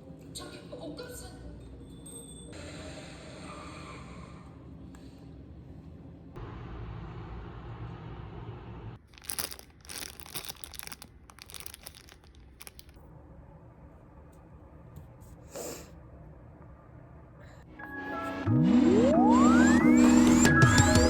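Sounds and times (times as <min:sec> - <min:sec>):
low background hum: 0:00.0 - 0:17.8
crinkling and rustling: 0:09.0 - 0:13.0.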